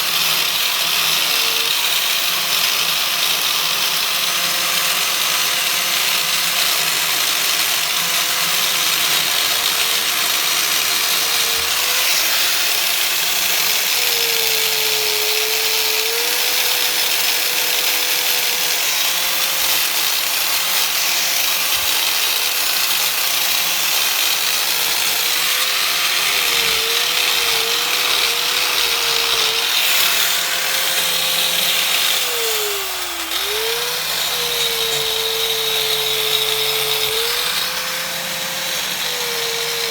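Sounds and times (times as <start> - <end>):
angle grinder whining: 0.0 - 39.9.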